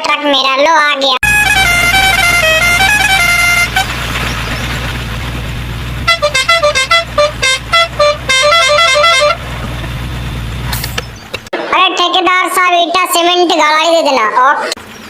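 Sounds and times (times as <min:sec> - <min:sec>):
musical truck horn: 0:01.2 - 0:10.7
truck engine rumbling: 0:01.2 - 0:11.5.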